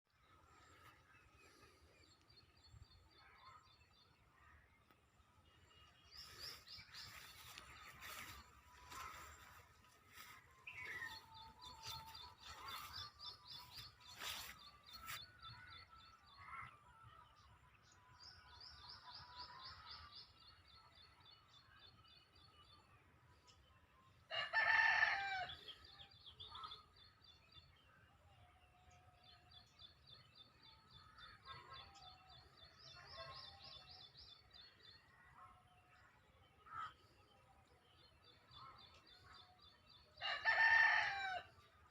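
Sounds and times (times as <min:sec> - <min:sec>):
rooster crowing: 0:24.3 - 0:25.5, 0:40.2 - 0:41.5.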